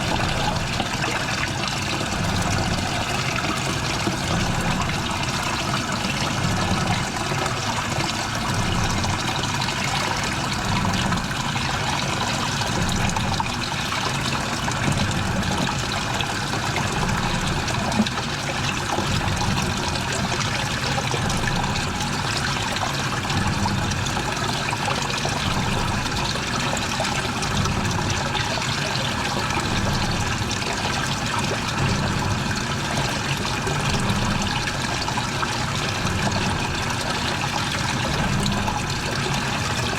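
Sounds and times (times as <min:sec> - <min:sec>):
washing machine sloshing water: 0:00.0 - 0:39.9.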